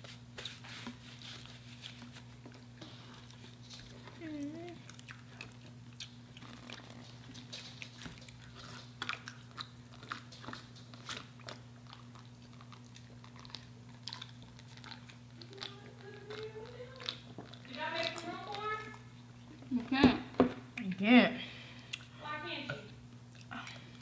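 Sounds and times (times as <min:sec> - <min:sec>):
crunchy fried chicken chewing: 0:00.9 - 0:19.7.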